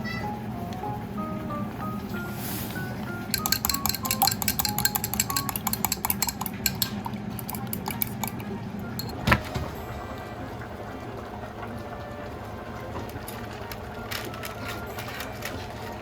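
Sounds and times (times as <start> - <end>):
dishes and cutlery clinking: 2.7 - 10.2.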